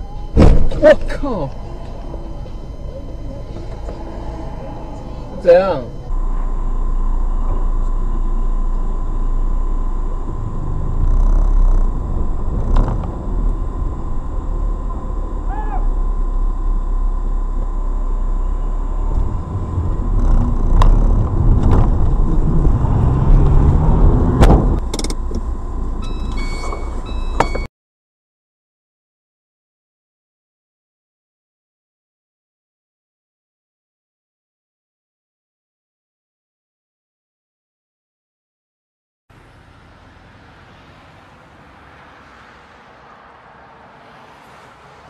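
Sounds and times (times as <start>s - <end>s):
short beeps: 0.0s - 20.4s, 26.0s - 27.7s
car driving rumble: 0.0s - 27.7s, 39.3s - 45.0s
thin steady whine: 0.0s - 27.7s.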